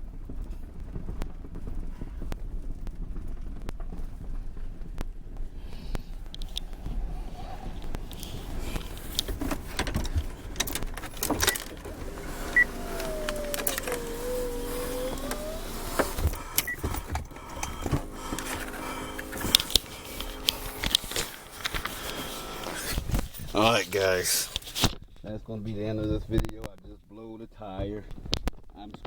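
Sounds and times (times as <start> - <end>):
steady hum: 5.5 - 24.8
vehicle running: 5.5 - 24.9
whining tone: 5.6 - 24.9
knocks and rattles: 7.6 - 23.6.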